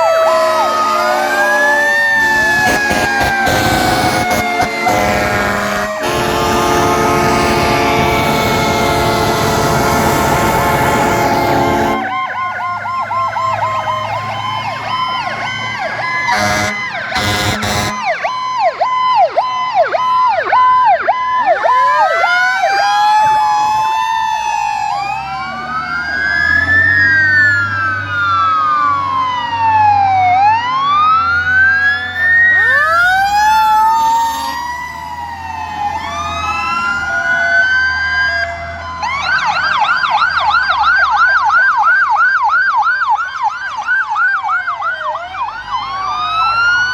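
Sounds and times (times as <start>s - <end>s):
fire truck sirens wailing: 0.0s - 46.9s
horn blasts: 0.1s - 12.3s, 16.3s - 18.2s.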